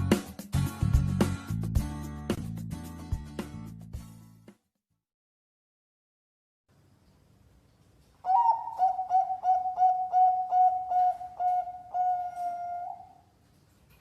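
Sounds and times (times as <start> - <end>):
dove cooing: 8.2 - 13.3.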